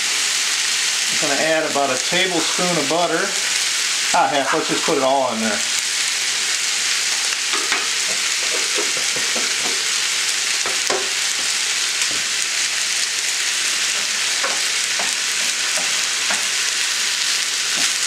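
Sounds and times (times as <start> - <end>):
food sizzling in a skillet: 0.0 - 18.0
wooden spatula stirring food: 7.5 - 10.0, 13.8 - 16.5.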